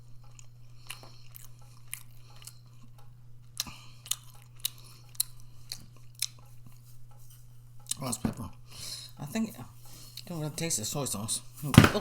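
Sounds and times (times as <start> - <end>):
person chewing food: 0.0 - 9.1.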